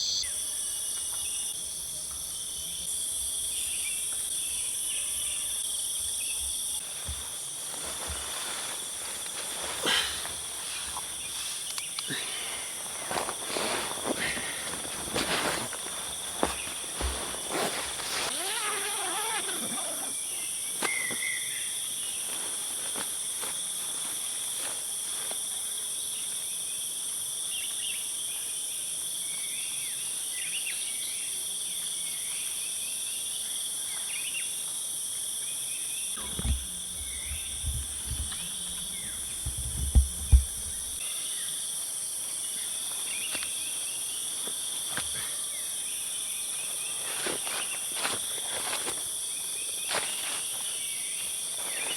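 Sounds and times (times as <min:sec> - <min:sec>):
faint chirps: 0:00.0 - 0:01.6
insect chorus shrilling: 0:00.0 - 0:01.6, 0:02.5 - 0:24.7, 0:35.7 - 0:41.6
dull low knocks: 0:36.2 - 0:41.0.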